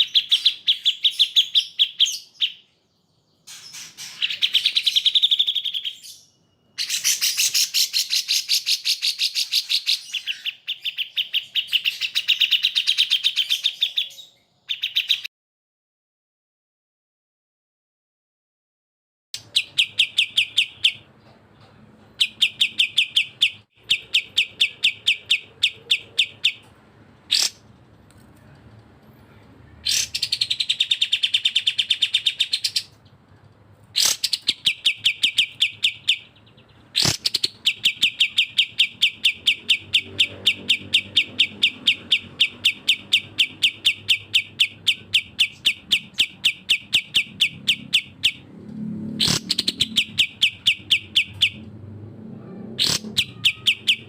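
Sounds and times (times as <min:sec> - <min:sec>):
bulbul song of rattling chirps: 0:03.3 - 0:14.1.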